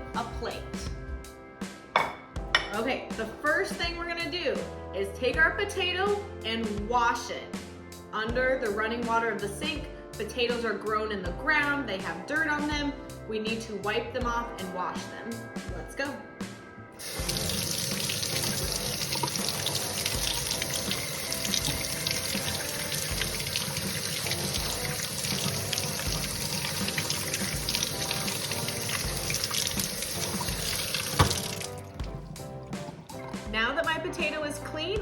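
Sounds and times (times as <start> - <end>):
music with steady beat: 0.4 - 2.9, 15.6 - 35.0
tap water splashing: 17.0 - 33.6.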